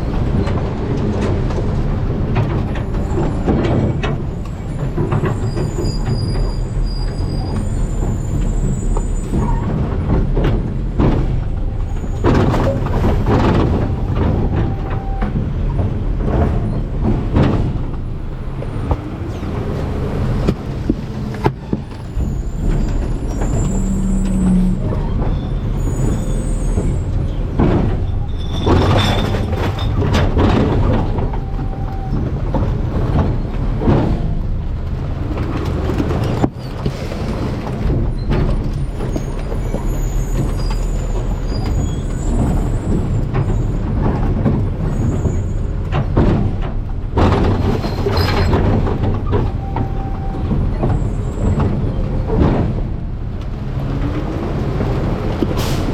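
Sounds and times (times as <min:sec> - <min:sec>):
garbage truck engine rumble: 0:00.0 - 0:55.9
knocks and crunches from hopper: 0:41.7 - 0:55.9.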